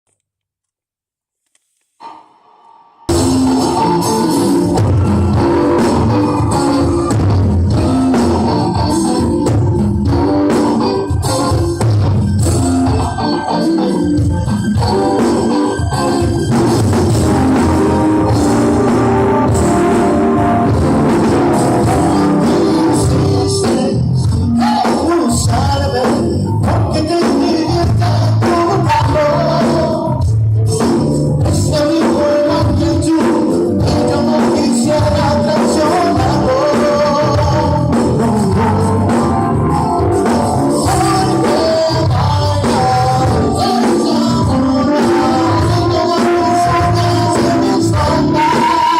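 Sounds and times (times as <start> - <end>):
person singing: 2.0 - 48.9
pop-rock band playing loudly: 3.1 - 48.9.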